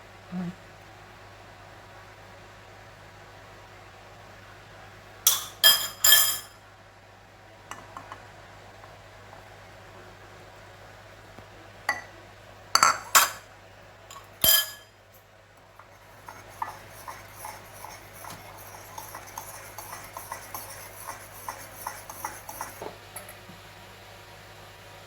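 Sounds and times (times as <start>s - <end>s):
spoon clinking against mug: 5.3s - 6.5s, 14.1s - 14.9s, 16.2s - 22.8s.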